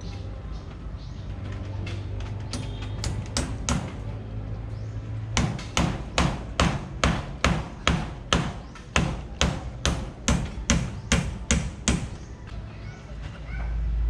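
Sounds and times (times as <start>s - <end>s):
hammer striking wood: 2.6s - 4.1s, 5.4s - 12.3s.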